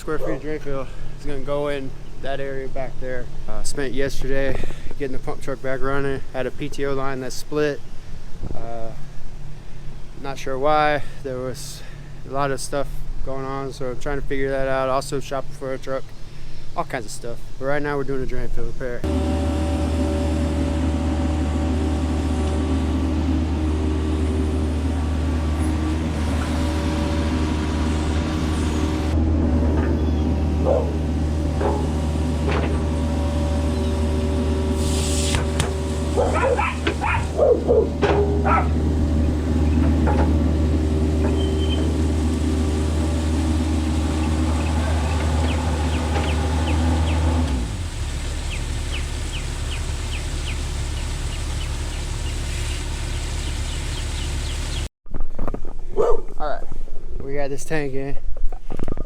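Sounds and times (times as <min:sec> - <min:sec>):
excavator diesel engine running: 0:19.0 - 0:54.9
metal clanks and squeals: 0:28.6 - 0:40.5, 0:41.1 - 0:42.2, 0:44.1 - 0:47.3.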